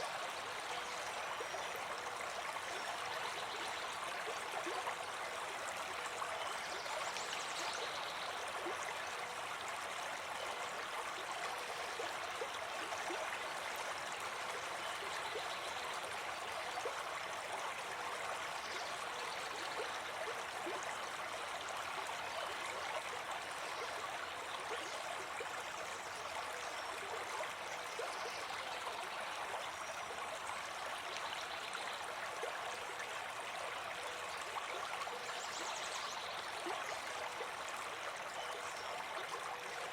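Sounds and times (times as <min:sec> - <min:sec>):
brook babbling: 0:00.0 - 0:39.9.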